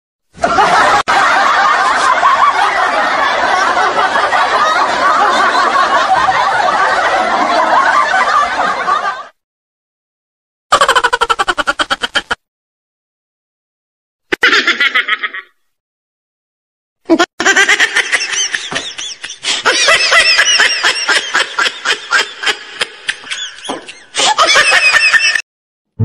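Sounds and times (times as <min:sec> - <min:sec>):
shrill giggling laughter: 0:10.7 - 0:12.4, 0:14.3 - 0:15.6, 0:17.1 - 0:25.4.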